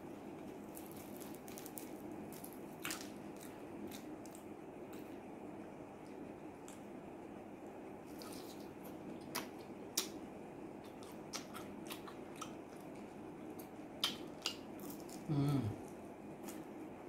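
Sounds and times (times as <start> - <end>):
chewing fried chicken: 0.3 - 5.2, 8.0 - 16.9
person humming mm: 15.2 - 15.8.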